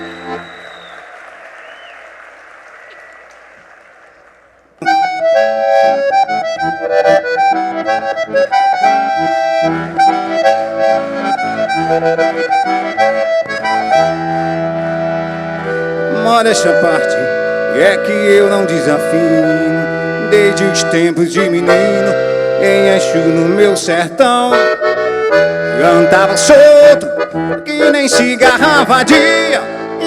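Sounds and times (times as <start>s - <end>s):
accordion playing: 0.0s - 1.1s, 4.7s - 30.0s
audience applause: 0.0s - 4.8s.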